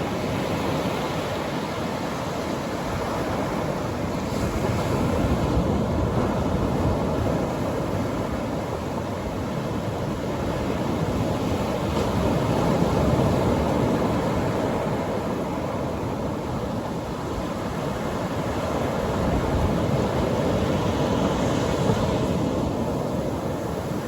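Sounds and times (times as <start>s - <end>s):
surf breaking on a beach: 0.0s - 24.0s
wind on microphone: 0.0s - 24.0s.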